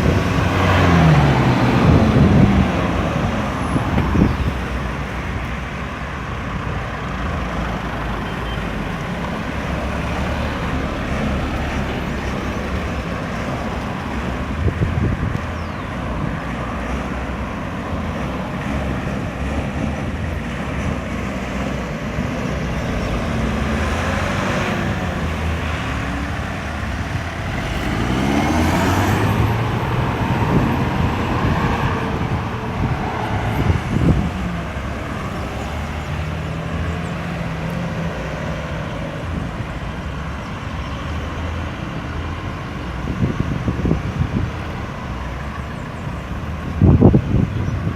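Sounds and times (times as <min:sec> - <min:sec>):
vehicle passing close: 0:00.0 - 0:05.2, 0:08.6 - 0:40.3
road traffic: 0:00.0 - 0:47.9.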